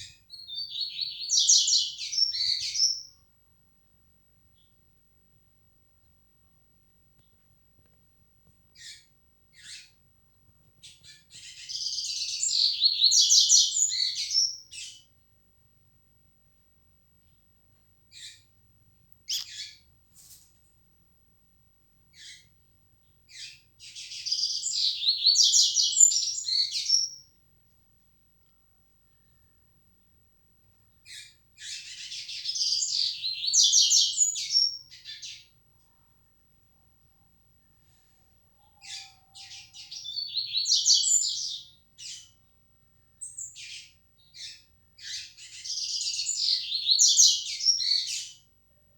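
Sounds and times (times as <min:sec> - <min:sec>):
seedeater bird singing: 0:00.0 - 0:03.3, 0:08.7 - 0:10.0, 0:10.8 - 0:15.1, 0:18.1 - 0:18.5, 0:19.2 - 0:19.9, 0:22.1 - 0:27.3, 0:30.9 - 0:35.5, 0:38.6 - 0:42.6, 0:43.2 - 0:48.4.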